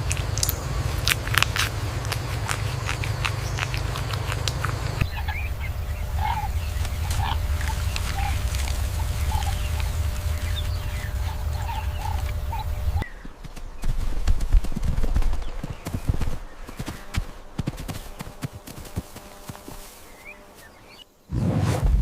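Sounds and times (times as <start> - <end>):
poultry calling: 0.0 - 14.1
steady low rumble: 0.0 - 19.5.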